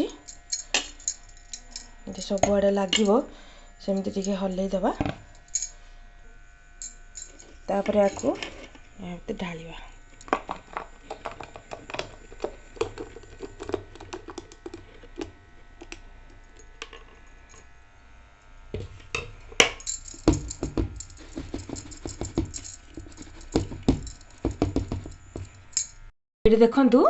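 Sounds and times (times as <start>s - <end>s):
utensil tapping a dish: 23.2s - 25.5s.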